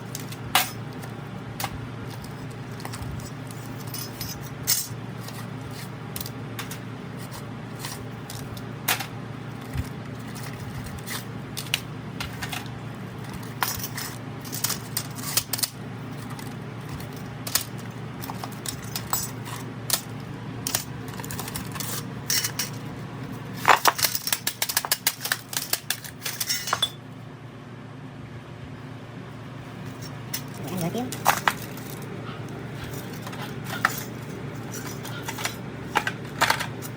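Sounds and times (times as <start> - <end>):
steady low hum: 0.0 - 36.9
metal tools clinking on hard surface: 1.6 - 5.5, 16.9 - 20.1, 20.7 - 22.8, 23.6 - 27.0, 32.9 - 36.9.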